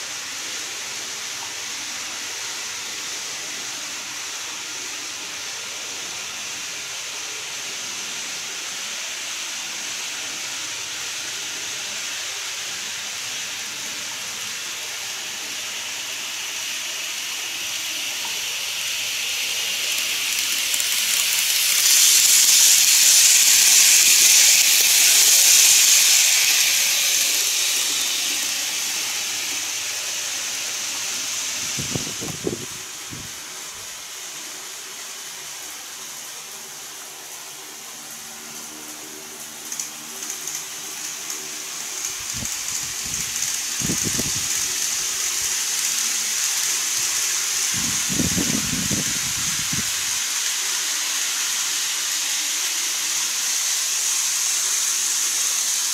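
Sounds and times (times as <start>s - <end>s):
model train passing: 0.0s - 55.9s.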